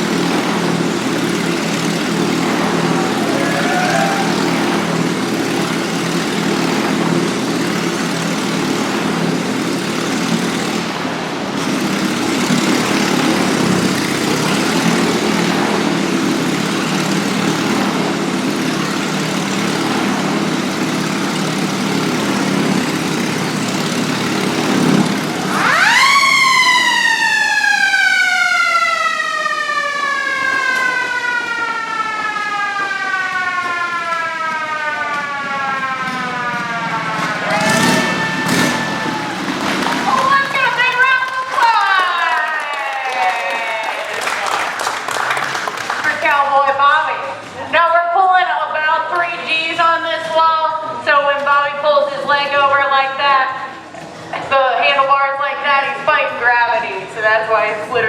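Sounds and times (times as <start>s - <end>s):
siren wailing: 0.0s - 7.4s, 25.2s - 44.2s
motorcycle engine running: 0.0s - 47.7s.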